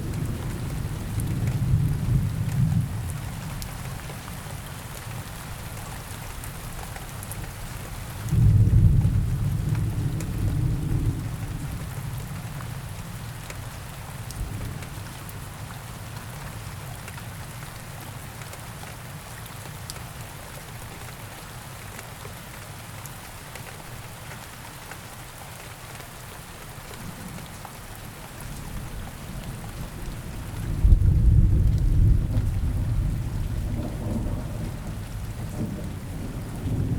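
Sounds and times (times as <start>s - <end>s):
steady rain: 0.0s - 36.9s
thunder rumble: 30.2s - 36.9s.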